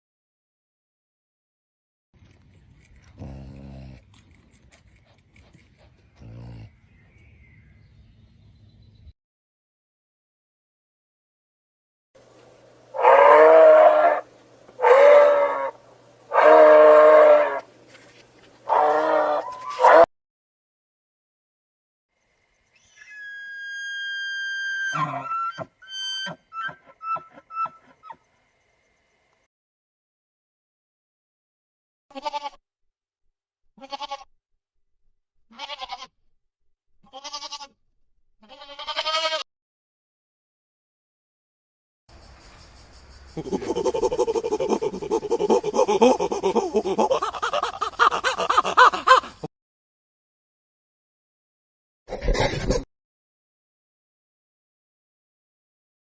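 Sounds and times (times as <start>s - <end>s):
animal drawn-out cry: 12.9s - 17.7s, 18.7s - 20.1s, 23.1s - 28.2s.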